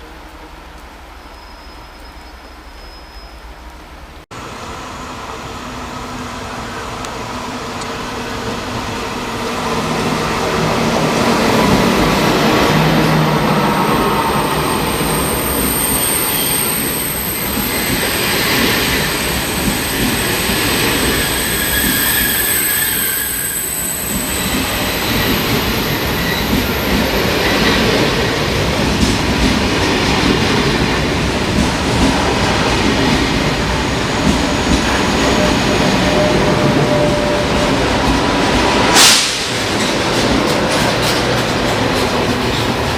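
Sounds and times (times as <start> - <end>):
train wheels rumbling on rails: 0.0 - 42.9
high-pitched wheel squeal: 14.4 - 27.0, 35.2 - 37.8.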